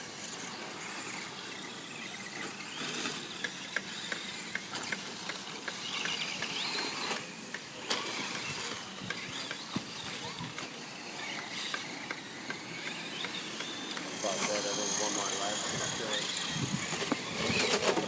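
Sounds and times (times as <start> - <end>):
gliding whines: 0.0 - 18.0
rc truck running on dirt: 0.0 - 18.0
sharp clicks and ticks: 3.0 - 9.7, 10.5 - 17.3.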